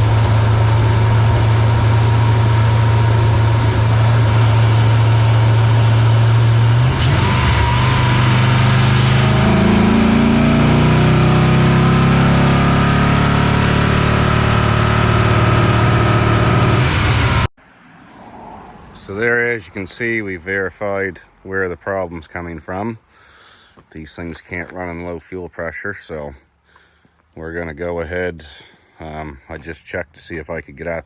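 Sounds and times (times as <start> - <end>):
truck engine revving: 0.0 - 17.5.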